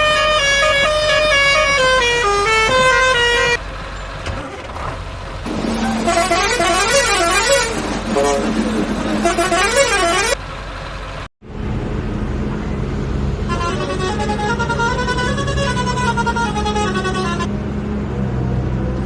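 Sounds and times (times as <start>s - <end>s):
siren-like horn tone: 0.0s - 3.6s, 5.8s - 8.6s, 9.2s - 10.4s, 13.4s - 17.5s
engine-like hum: 0.0s - 19.0s.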